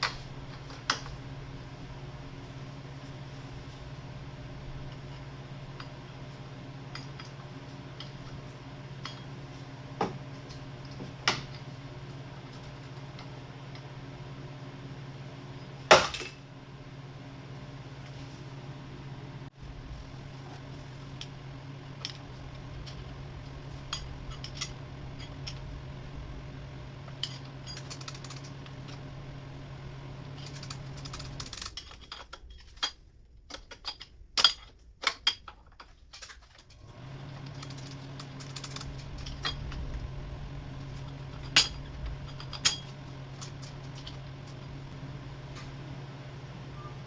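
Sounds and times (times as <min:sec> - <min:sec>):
steady low hum: 0:00.0 - 0:32.9, 0:36.7 - 0:47.0
metal tools clinking: 0:27.1 - 0:29.0, 0:40.8 - 0:44.6.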